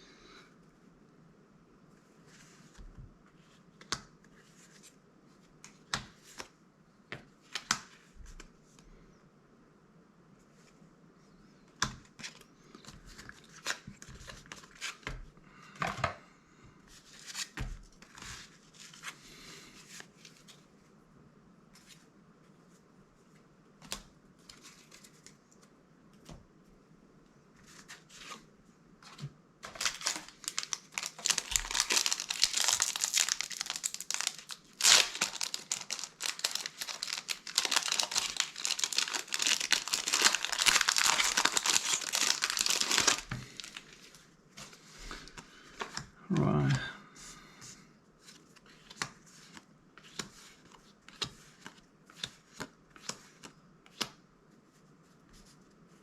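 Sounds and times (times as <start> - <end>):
cards clicking and rustling: 29.1 - 43.9
plastic wrapper crinkling and tearing: 29.6 - 43.9.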